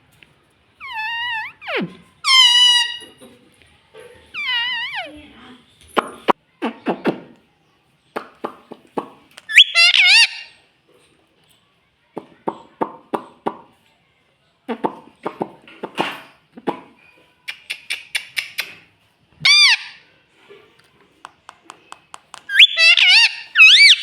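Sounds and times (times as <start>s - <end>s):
parrot screeching: 0.8s - 3.2s, 4.4s - 5.2s, 9.5s - 10.6s, 19.4s - 20.0s, 22.5s - 24.0s
parrot clicky chattering: 21.5s - 24.0s.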